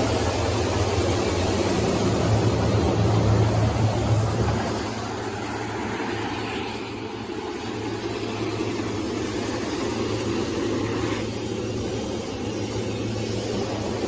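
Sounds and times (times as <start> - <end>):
wood sanding machine running: 0.0 - 14.0.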